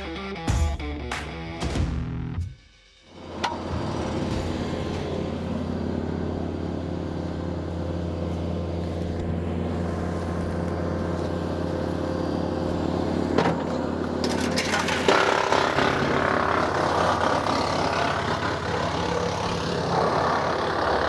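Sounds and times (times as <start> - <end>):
tractor engine running: 3.1 - 21.0.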